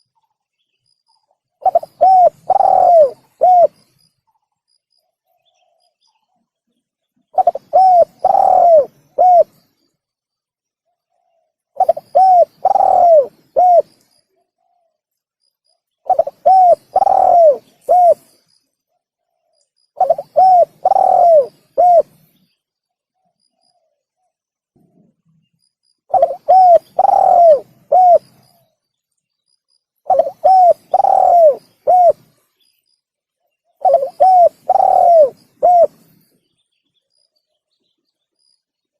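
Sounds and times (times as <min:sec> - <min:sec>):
dove cooing: 0:01.6 - 0:03.8, 0:07.4 - 0:09.6, 0:11.8 - 0:13.9, 0:16.1 - 0:18.3, 0:20.0 - 0:22.2, 0:26.1 - 0:28.6, 0:30.0 - 0:32.3, 0:33.8 - 0:36.1.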